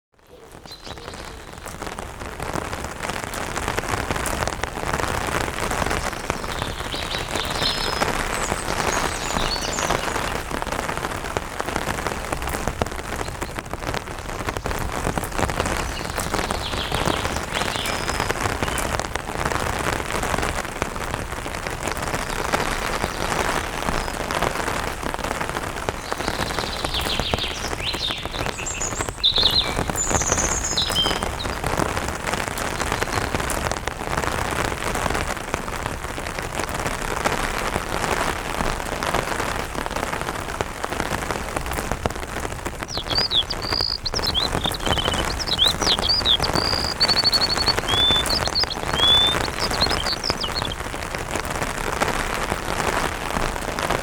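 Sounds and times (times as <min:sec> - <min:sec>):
rain pattering on an umbrella: 0:00.1 - 0:54.0
birds chirping: 0:00.2 - 0:02.0, 0:05.2 - 0:10.7, 0:13.1 - 0:19.0, 0:25.9 - 0:31.9, 0:42.7 - 0:50.9.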